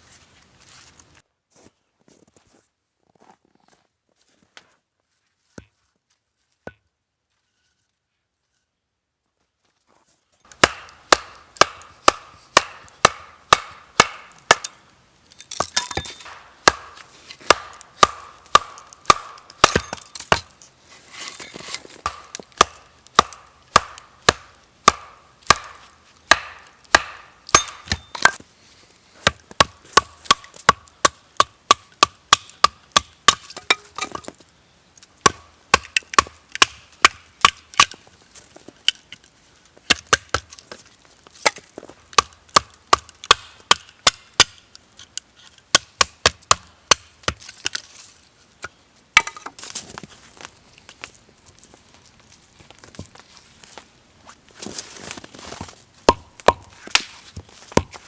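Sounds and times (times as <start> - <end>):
wood being chopped: 10.5 - 14.8, 15.5 - 20.6, 21.5 - 28.4, 29.2 - 34.4, 35.2 - 38.0, 39.9 - 40.6, 41.4 - 44.6, 45.7 - 47.8, 49.2 - 49.7, 55.4 - 58.0.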